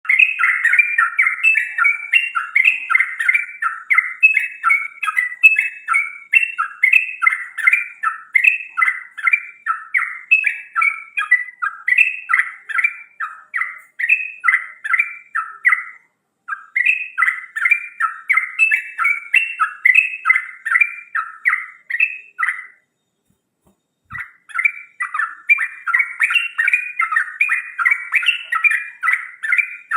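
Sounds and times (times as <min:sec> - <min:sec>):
songbird whistling: 0:00.0 - 0:29.9.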